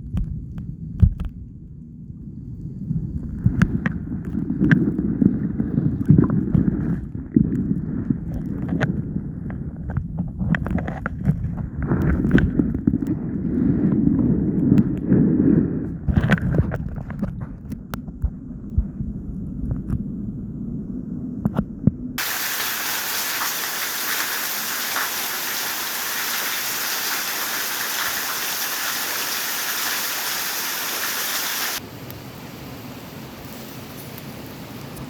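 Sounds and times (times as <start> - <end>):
rushing water: 22.2 - 31.8.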